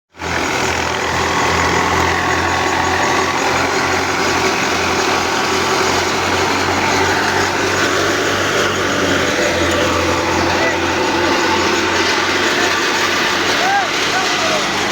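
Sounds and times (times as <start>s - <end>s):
tractor diesel engine running: 0.1s - 14.9s.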